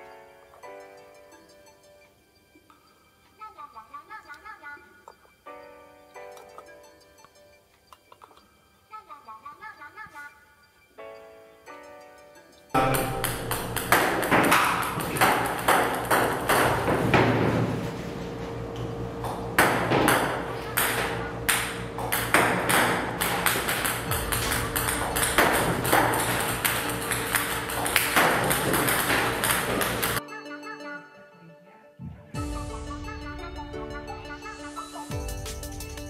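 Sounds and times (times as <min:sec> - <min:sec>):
steady low hum: 0:12.8 - 0:30.2
table tennis balls bouncing: 0:12.8 - 0:30.2.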